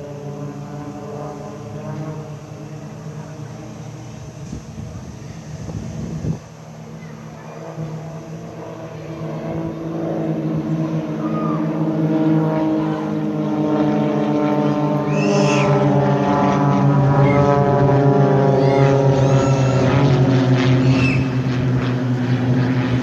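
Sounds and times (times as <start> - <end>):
aircraft engine droning: 0.0 - 23.0
high whistle: 15.1 - 15.8, 20.8 - 21.4.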